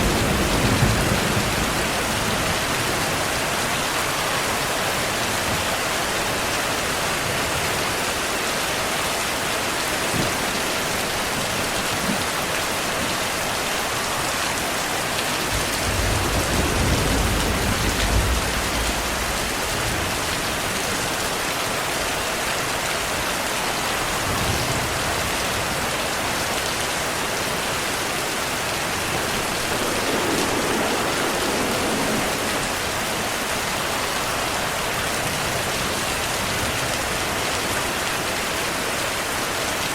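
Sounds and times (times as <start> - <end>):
distant thunder rumble: 0.0 - 5.8, 15.4 - 20.8, 28.1 - 36.6
steady rain falling: 0.0 - 39.9.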